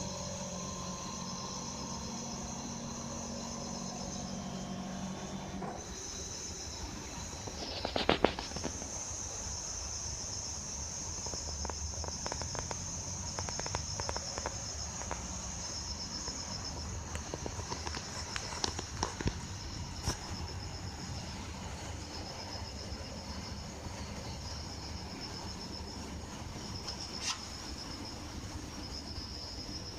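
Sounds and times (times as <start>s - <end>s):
air conditioner humming: 0.0s - 29.9s
high-pitched whine: 0.0s - 29.9s.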